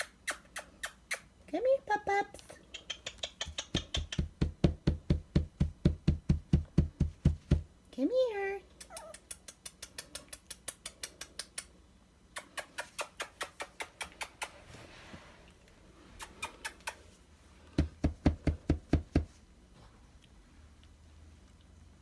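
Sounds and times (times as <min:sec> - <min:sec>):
person making sharp clicks: 0:02.6 - 0:04.4, 0:08.8 - 0:14.6.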